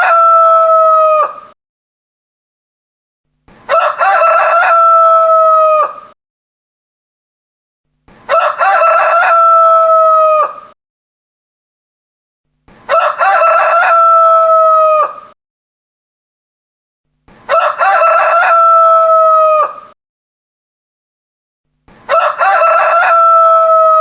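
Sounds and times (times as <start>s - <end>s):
rooster crowing: 0.0s - 1.6s, 3.7s - 6.2s, 8.3s - 10.8s, 12.9s - 15.4s, 17.5s - 20.0s, 22.1s - 24.0s.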